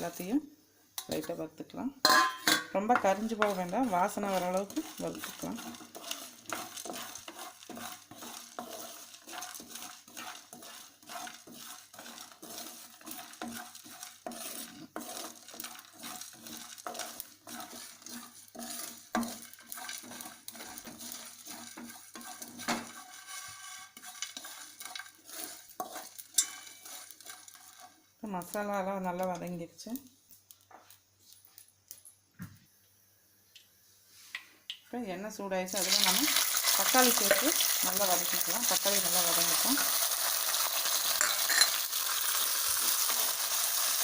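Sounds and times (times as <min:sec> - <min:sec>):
faint sizzle: 0:00.0 - 0:44.0
spoon scraping and clinking: 0:02.0 - 0:28.0, 0:35.8 - 0:44.0.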